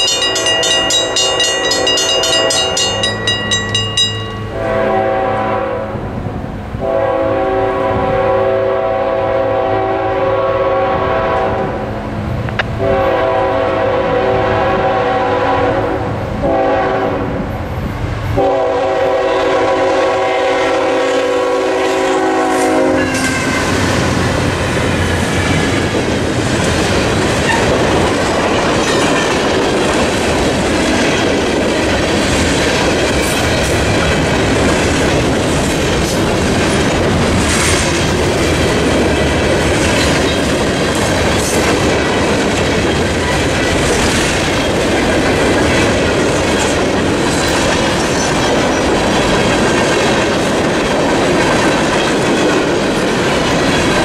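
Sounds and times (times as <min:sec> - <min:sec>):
train wheels on rails: 0:00.0 - 0:54.0
train horn blasts: 0:04.0 - 0:06.1, 0:06.8 - 0:11.9, 0:12.8 - 0:17.4, 0:18.4 - 0:24.2.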